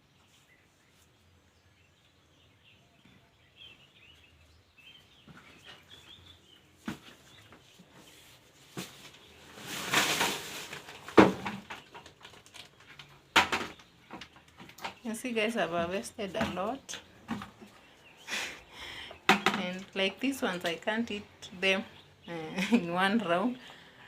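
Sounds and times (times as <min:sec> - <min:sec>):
faint birds chirping: 0:00.0 - 0:24.0
rustling: 0:04.9 - 0:18.2
knocks of things being handled: 0:13.3 - 0:15.0, 0:19.3 - 0:19.9.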